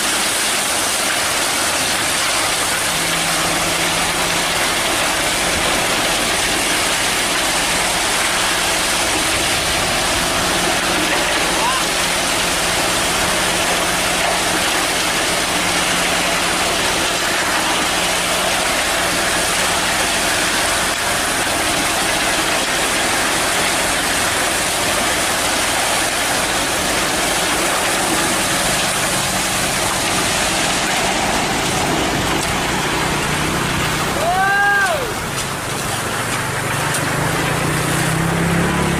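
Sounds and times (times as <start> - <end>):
loud rushing noise: 0.0 - 18.6, 26.4 - 38.9
diesel truck engine running: 0.0 - 38.9.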